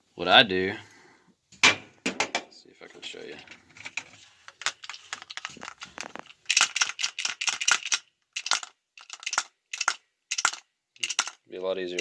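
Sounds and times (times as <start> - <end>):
metal bolt rattling against plastic: 4.6 - 11.4.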